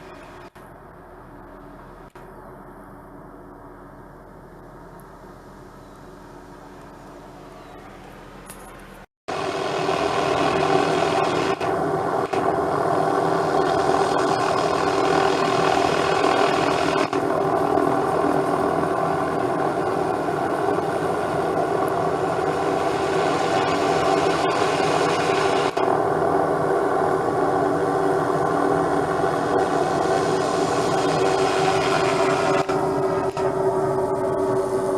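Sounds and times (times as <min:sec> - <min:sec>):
helicopter rotor and turbine: 0:09.3 - 0:34.9.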